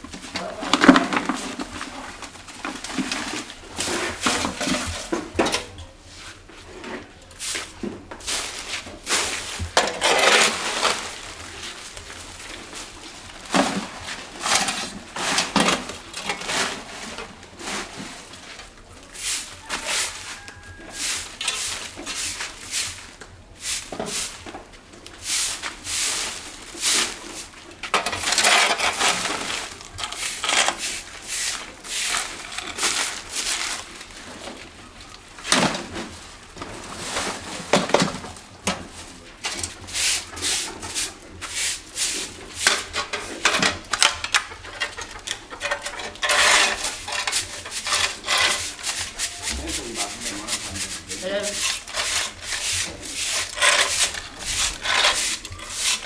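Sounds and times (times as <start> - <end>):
scraping and rubbing strokes: 6.1 - 15.6, 19.1 - 24.4, 25.2 - 34.1, 39.8 - 56.0.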